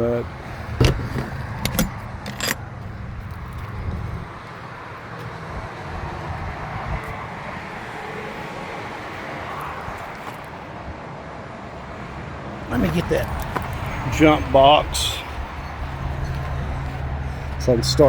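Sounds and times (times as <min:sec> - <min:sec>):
truck engine idling: 0:12.8 - 0:18.0.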